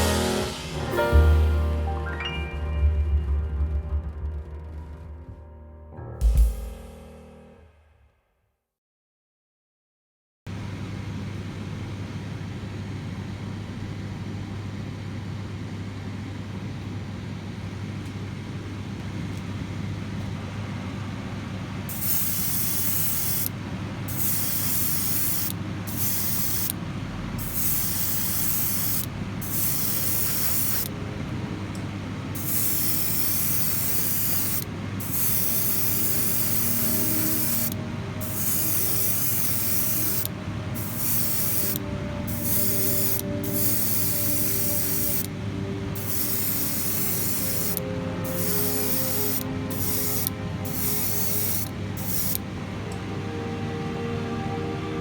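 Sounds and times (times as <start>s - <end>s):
steady low hum: 10.5s - 55.0s
spray paint hissing: 21.9s - 26.8s, 27.4s - 30.9s, 32.4s - 45.3s, 45.9s - 52.4s.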